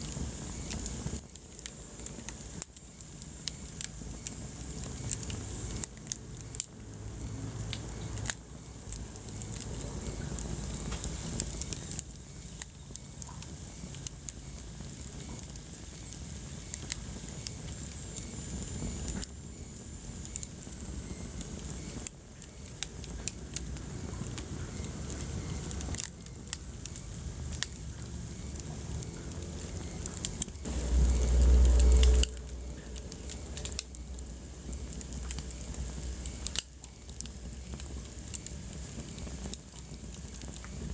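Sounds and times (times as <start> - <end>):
wood fire crackling: 0.0 - 40.9
low rumble: 27.7 - 36.6.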